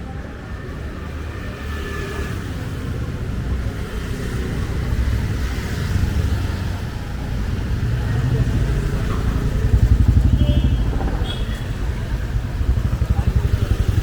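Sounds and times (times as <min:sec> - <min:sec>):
vehicle engine rumble: 0:05.2 - 0:14.0.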